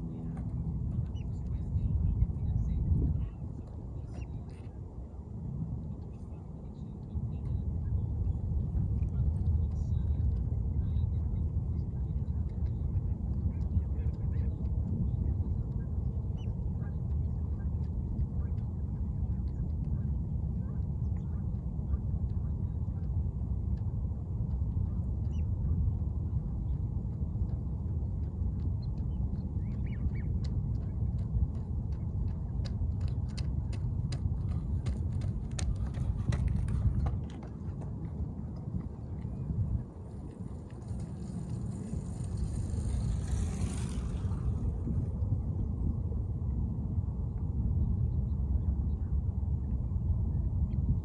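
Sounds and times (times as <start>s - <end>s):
steady low rumble: 0.0s - 51.0s
birds chirping: 28.7s - 31.0s.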